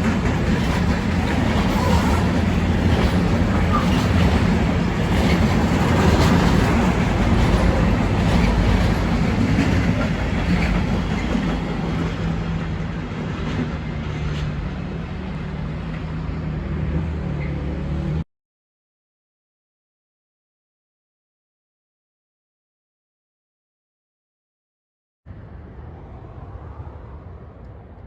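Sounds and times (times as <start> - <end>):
train rumbling past: 0.0 - 18.2, 25.3 - 28.0.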